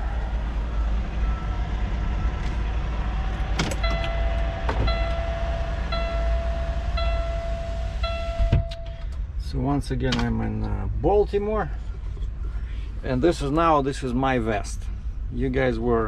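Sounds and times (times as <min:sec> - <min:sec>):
truck diesel engine idling: 0:00.0 - 0:09.0
warning beep: 0:03.8 - 0:08.9.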